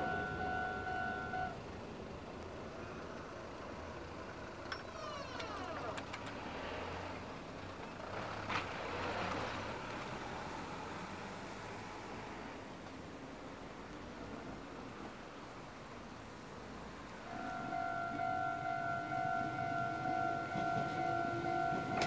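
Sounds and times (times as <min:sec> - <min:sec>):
electric train rumbling on bridge: 0:00.0 - 0:04.8, 0:16.6 - 0:22.0.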